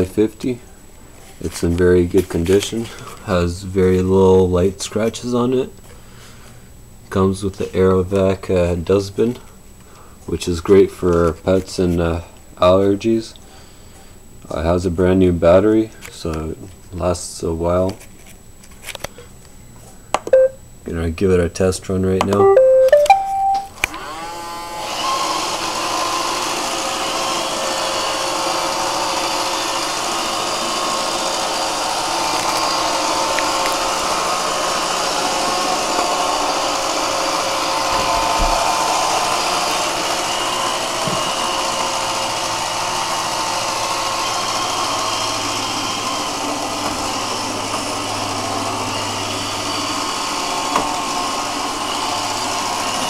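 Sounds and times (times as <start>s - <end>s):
robot vacuum whirring: 24.9s - 53.0s.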